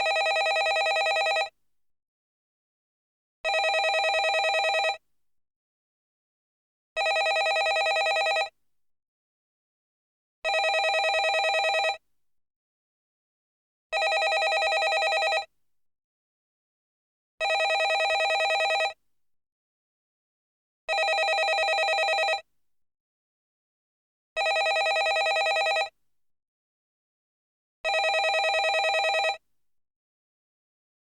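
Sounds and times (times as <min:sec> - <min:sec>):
telephone ringing: 0:00.0 - 0:01.5, 0:03.5 - 0:05.0, 0:07.0 - 0:08.5, 0:10.5 - 0:12.0, 0:14.0 - 0:15.5, 0:17.4 - 0:19.0, 0:20.9 - 0:22.4, 0:24.4 - 0:25.9, 0:27.9 - 0:29.4.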